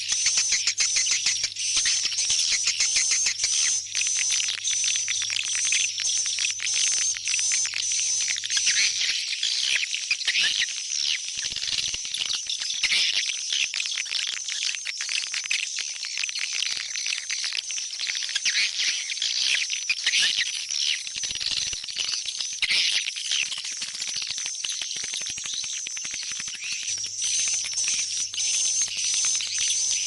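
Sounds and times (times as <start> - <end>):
swiftlets chirping and twittering: 0.0 - 13.6, 16.8 - 30.0.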